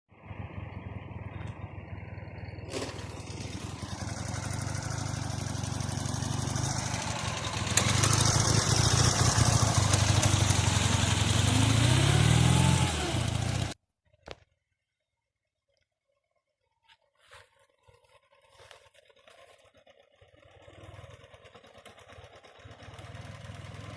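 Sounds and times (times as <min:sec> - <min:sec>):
motorcycle engine running: 0:00.2 - 0:13.8, 0:19.2 - 0:23.9.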